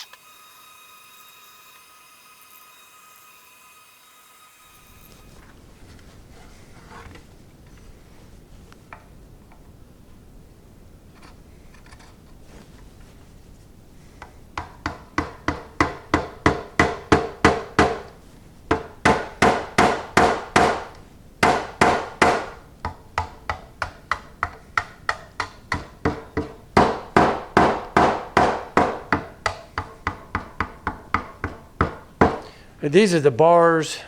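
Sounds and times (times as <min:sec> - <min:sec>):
hammer on sheet steel: 0:14.6 - 0:18.1, 0:18.7 - 0:32.5.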